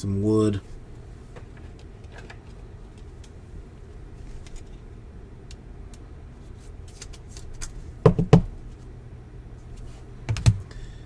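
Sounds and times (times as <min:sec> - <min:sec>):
loud knocks: 0:10.3 - 0:10.7.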